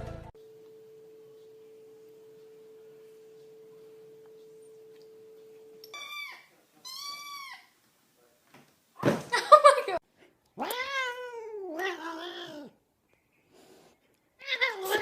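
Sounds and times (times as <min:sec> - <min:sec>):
faint steady pure tone: 0:00.4 - 0:07.2
cat meowing: 0:06.0 - 0:07.7, 0:10.6 - 0:12.7, 0:14.4 - 0:15.0.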